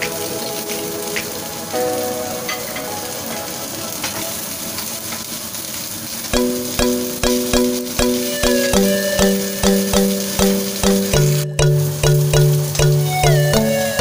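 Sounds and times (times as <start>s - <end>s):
background music: 0.0s - 4.8s, 6.4s - 14.0s
skewers sizzling on a grill pan: 0.0s - 14.0s.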